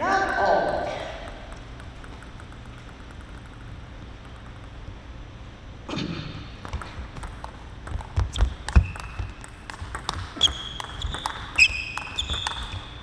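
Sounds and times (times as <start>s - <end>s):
ping pong ball clicking: 0.2s - 5.0s, 6.6s - 13.0s
sneaker squeaks on floor: 8.2s - 9.4s, 10.4s - 13.0s.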